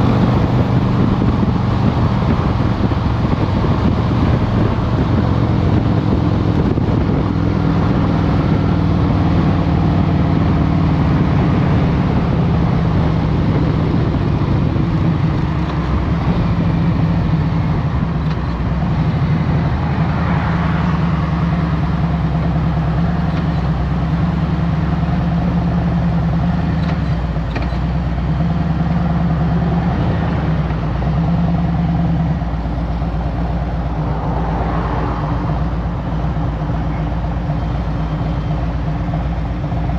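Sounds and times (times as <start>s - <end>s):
motorcycle engine running: 0.0s - 20.1s.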